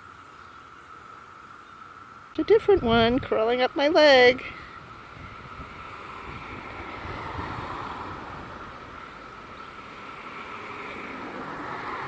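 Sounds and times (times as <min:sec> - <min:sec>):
cicadas droning chorus: 0:00.0 - 0:12.0.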